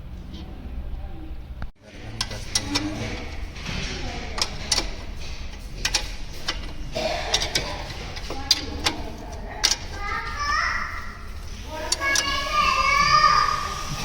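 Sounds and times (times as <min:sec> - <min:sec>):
low workshop hum: 0:00.0 - 0:14.0
hand tools clicking on metal: 0:04.4 - 0:12.9.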